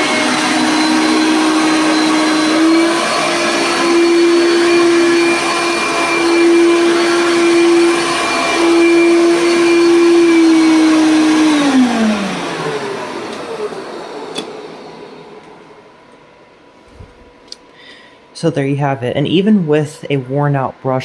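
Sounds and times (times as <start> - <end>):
upright vacuum whining: 0.0 - 18.0.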